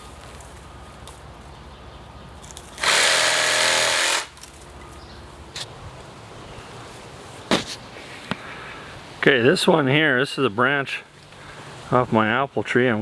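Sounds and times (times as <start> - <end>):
reciprocating saw running: 2.8 - 4.4.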